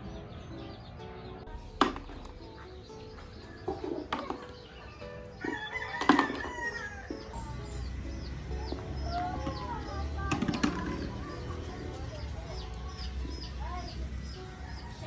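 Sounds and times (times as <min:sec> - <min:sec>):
small birds chirping: 0:00.0 - 0:15.0
rooster crowing: 0:04.7 - 0:07.5.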